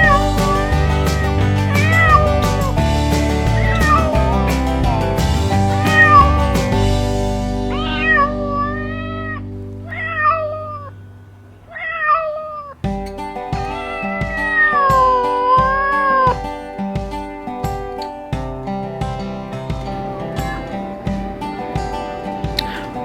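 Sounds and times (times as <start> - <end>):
background music with guitar: 0.0 - 23.0
cat meowing: 7.7 - 11.0, 11.7 - 12.8, 13.5 - 16.4, 19.5 - 23.0.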